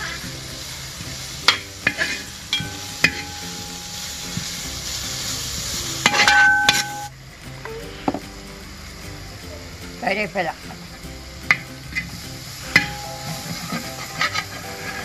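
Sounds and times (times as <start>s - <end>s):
vegetables sizzling in oil: 0.0s - 15.0s
steel ladle knocking and scraping pot: 1.5s - 4.4s, 6.1s - 7.1s.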